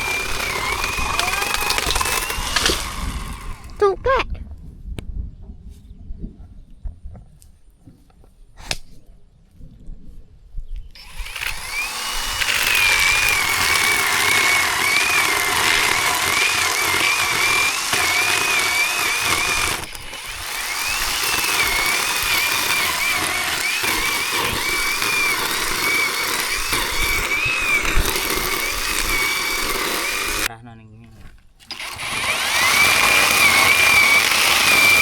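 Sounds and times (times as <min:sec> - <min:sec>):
electric chainsaw motor whine: 0:00.0 - 0:04.0, 0:11.0 - 0:30.5, 0:31.6 - 0:35.0.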